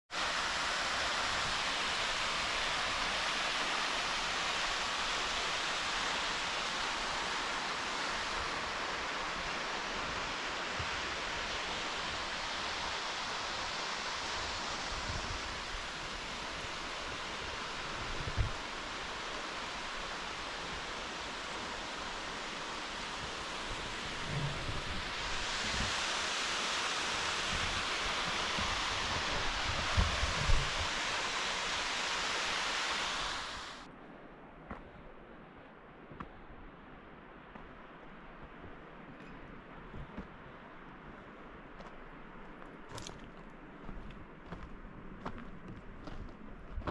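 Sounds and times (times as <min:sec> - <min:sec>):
creek water flowing: 0:00.1 - 0:33.9.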